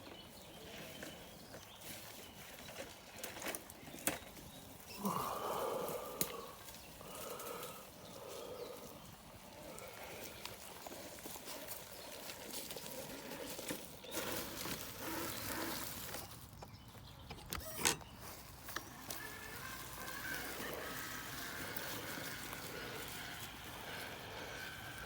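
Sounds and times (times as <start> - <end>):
rc crawler tires crunching: 0.0 - 25.0.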